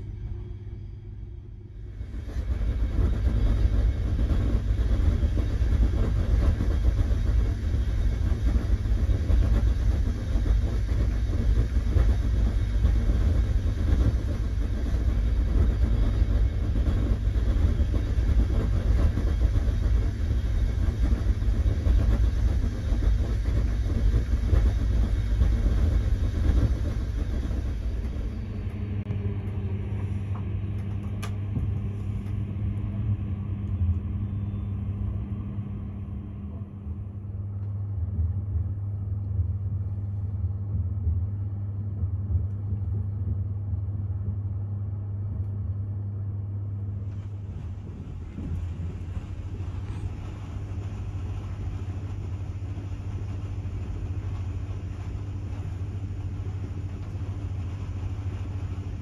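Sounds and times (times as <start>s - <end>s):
train wheels rumbling on rails: 1.8s - 33.0s, 46.7s - 59.0s.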